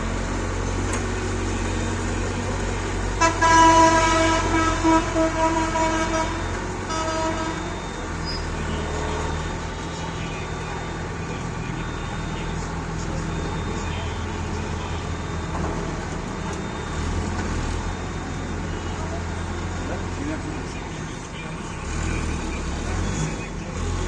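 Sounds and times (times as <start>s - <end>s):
heavy vehicle engine rumble: 0.0s - 24.0s
vehicle horn honks: 3.1s - 7.9s.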